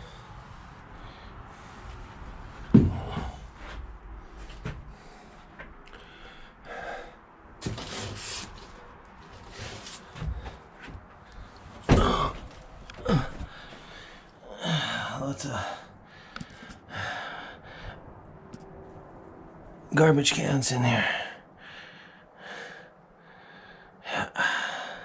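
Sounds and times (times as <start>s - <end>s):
clunks and knocks of parts: 2.6s - 5.8s, 7.6s - 13.9s.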